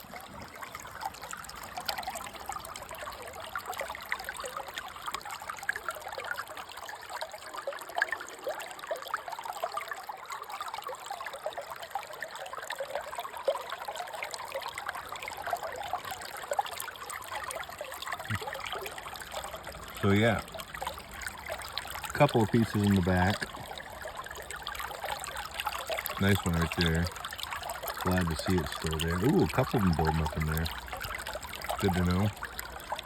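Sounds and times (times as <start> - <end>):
water trickling and splashing: 0.0 - 33.0.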